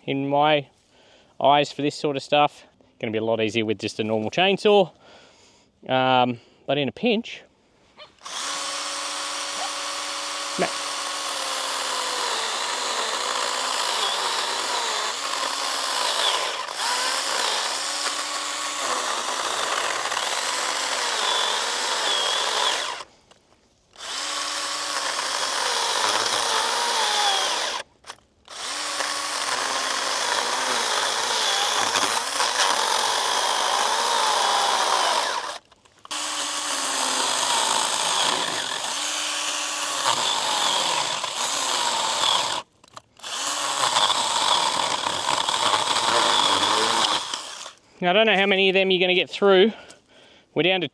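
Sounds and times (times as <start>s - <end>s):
electric pruner motor whine: 8.2s - 23.1s, 24.0s - 47.8s
chain cutting through branch: 24.0s - 47.8s.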